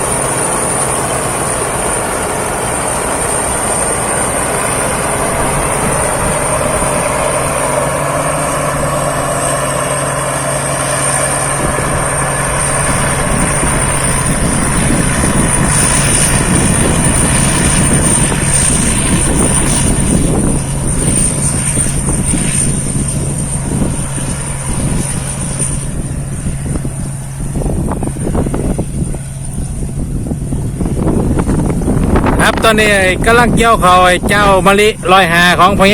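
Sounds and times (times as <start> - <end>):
combine harvester engine drone: 0.0 - 35.9
thin high whine: 0.0 - 35.9.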